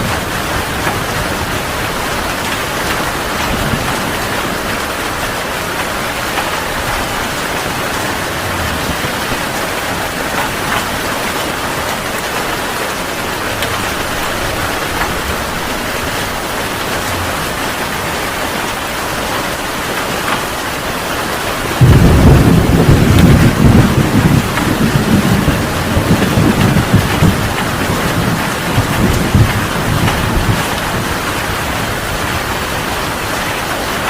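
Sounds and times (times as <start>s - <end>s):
thunder rumble: 0.0s - 12.5s, 21.6s - 34.0s
heavy rain falling: 0.0s - 34.0s.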